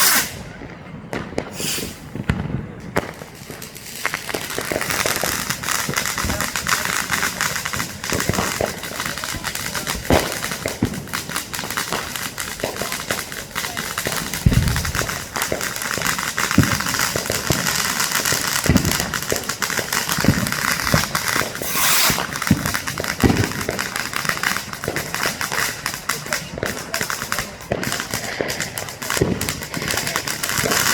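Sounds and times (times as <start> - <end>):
rushing hiss: 0.0 - 0.4, 1.5 - 2.1, 21.4 - 22.6
firework booms: 0.0 - 30.9
fireworks crackling: 0.0 - 30.9.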